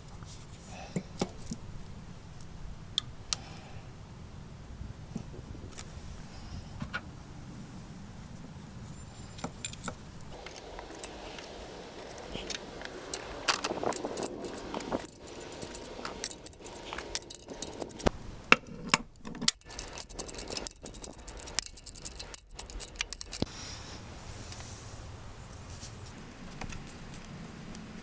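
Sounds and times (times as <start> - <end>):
small metal objects clinking: 9.3 - 23.5.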